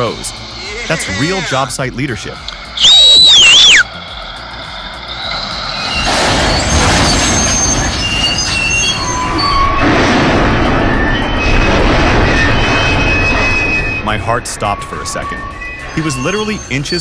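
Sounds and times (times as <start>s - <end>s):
high-pitched squeals: 0.0s - 1.7s, 2.5s - 4.0s, 5.8s - 17.0s
heavy machinery rumbling: 5.1s - 15.0s.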